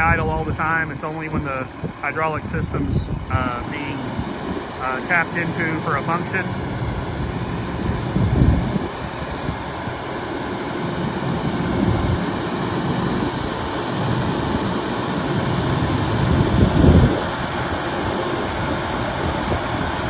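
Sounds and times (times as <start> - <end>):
diesel truck engine idling: 0.0 - 20.0
engine low surges: 0.0 - 20.0.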